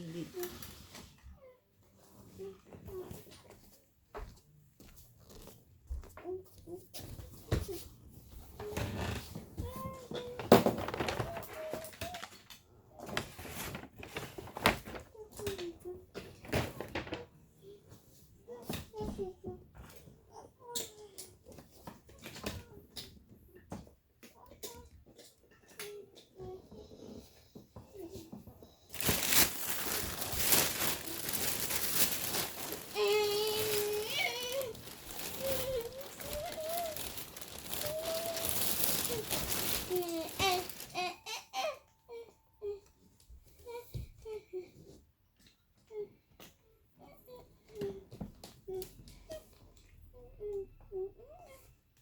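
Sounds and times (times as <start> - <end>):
child's voice: 2.3 - 3.6, 6.2 - 7.9, 8.6 - 12.4, 15.1 - 23.8, 24.4 - 28.5, 30.0 - 31.7, 32.3 - 42.9, 47.0 - 51.8
plastic wrapping crinkling: 9.6 - 15.7, 16.4 - 17.2, 28.9 - 41.4.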